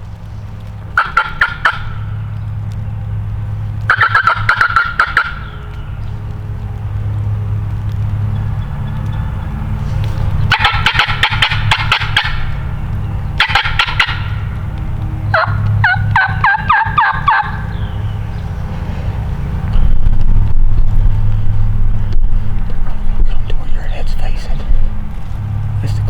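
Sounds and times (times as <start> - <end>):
low hum: 0.0 - 26.0
sharp falling calls: 0.9 - 2.4, 3.8 - 6.2, 10.3 - 18.7
turkey gobbling: 0.9 - 2.4, 3.8 - 6.4, 8.4 - 18.2.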